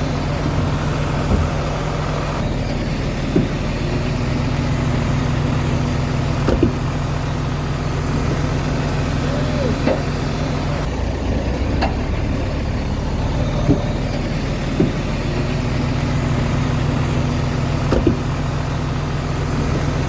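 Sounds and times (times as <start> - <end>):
bulldozer diesel engine running: 0.0 - 20.0
short knocks: 0.4 - 1.9, 6.4 - 6.9, 17.8 - 18.4.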